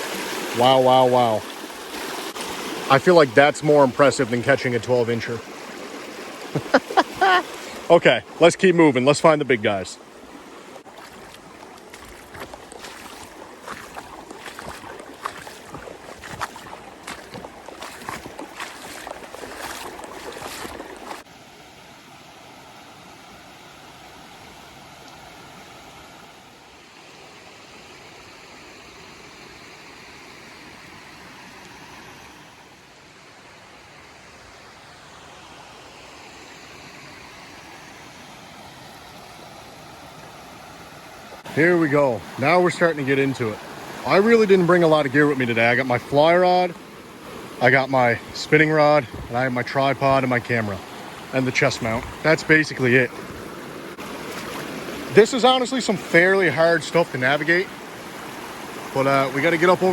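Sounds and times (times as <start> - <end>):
brook rushing: 0.0 - 21.3, 47.5 - 57.7
footsteps splashing through water: 5.4 - 7.8, 10.3 - 21.3, 50.4 - 55.2.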